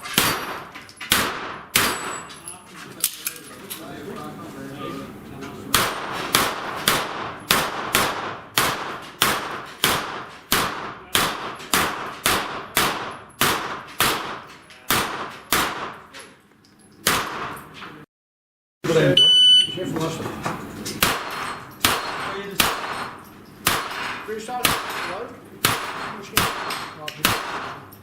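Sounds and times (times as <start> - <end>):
pistol shots ringing on steel: 0.0 - 2.3, 5.8 - 16.0, 21.0 - 27.9.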